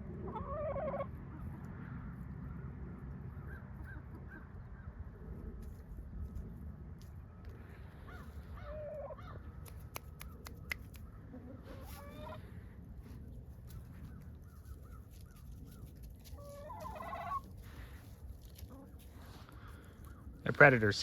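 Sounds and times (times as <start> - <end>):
chickens squawking: 0.0 - 5.2, 7.9 - 21.0
sharp clicks: 9.6 - 11.1.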